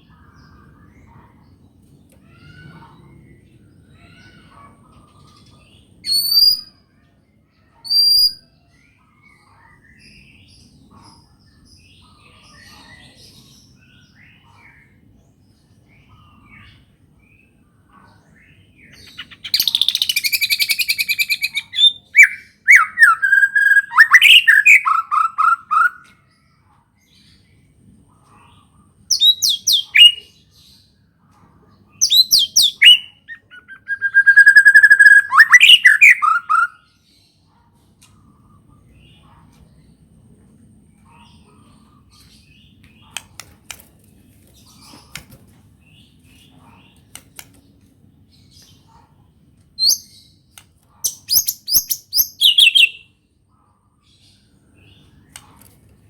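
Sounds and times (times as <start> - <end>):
faint bird chirps: 0.0 - 40.1, 48.2 - 55.8
songbird singing: 0.0 - 56.0
loud fast bird trill: 19.0 - 26.0, 32.0 - 36.8, 51.1 - 53.1.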